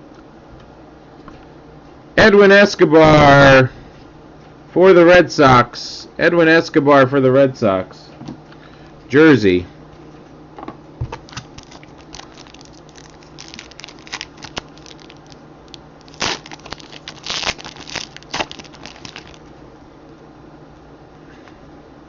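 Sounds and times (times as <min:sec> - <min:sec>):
cards rustling: 0:11.2 - 0:19.5
wrapper tearing and crinkling: 0:11.2 - 0:19.5.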